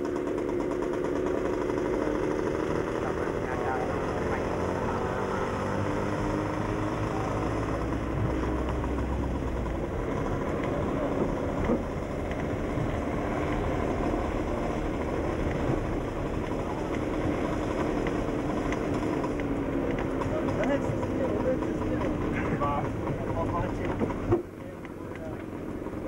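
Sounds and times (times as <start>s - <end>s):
road rumble: 0.0s - 26.0s
two-stroke engines droning: 0.0s - 26.0s.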